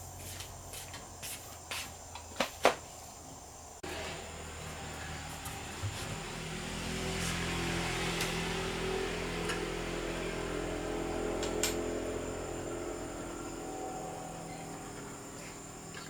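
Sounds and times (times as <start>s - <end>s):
motor humming: 3.8s - 16.0s.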